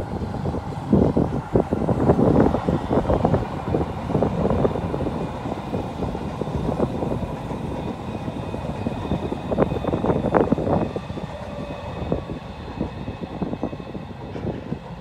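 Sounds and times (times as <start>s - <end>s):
electric train crossing bridge: 0.0s - 15.0s
wind buffeting microphone: 0.0s - 15.0s.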